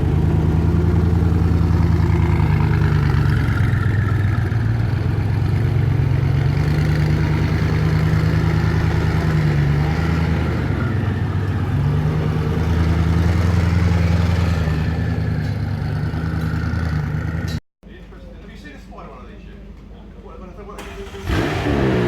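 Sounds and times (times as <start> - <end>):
car engine rumbling at low revs: 0.0 - 17.6.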